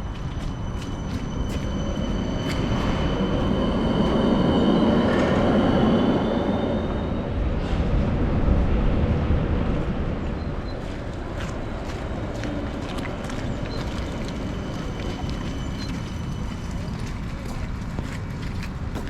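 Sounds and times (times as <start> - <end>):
high thin wheel squeal: 0.2 - 7.2.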